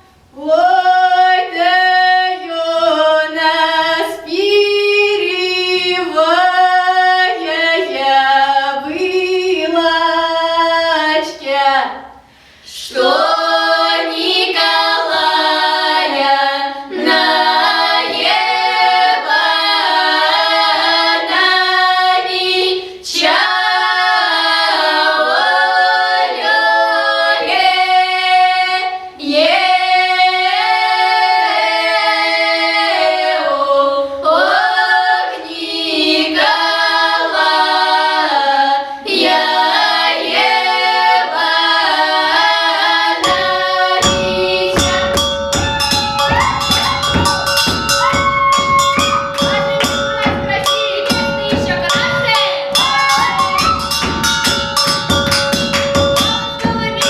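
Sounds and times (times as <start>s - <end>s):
children's choir singing folk song: 0.0s - 57.0s.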